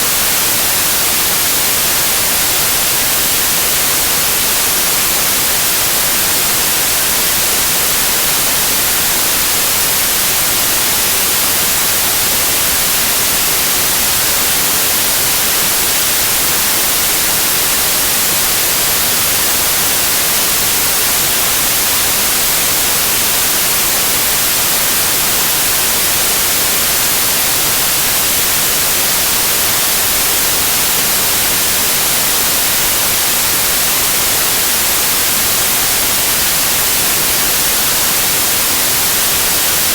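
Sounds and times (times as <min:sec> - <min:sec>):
static white noise hiss: 0:00.0 - 0:39.9.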